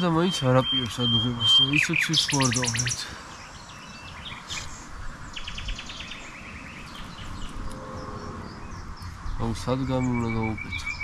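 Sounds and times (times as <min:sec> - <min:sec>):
fast high bird trill: 0:00.0 - 0:03.0
small birds chirping: 0:00.0 - 0:11.0
low background rumble: 0:06.9 - 0:10.2.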